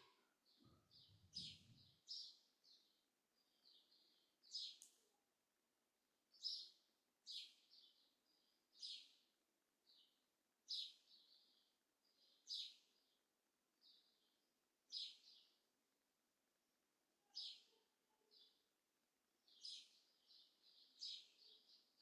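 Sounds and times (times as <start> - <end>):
bird chirping: 0.0 - 5.0, 6.3 - 9.2, 9.9 - 13.2, 14.9 - 15.6, 19.5 - 22.0.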